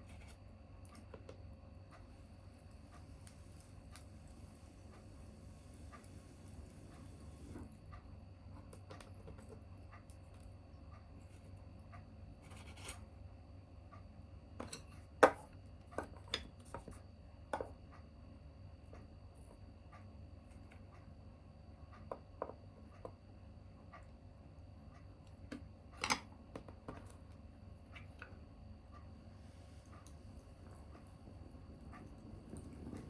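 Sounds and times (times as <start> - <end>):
wood fire crackling: 1.9 - 9.2, 29.4 - 33.0.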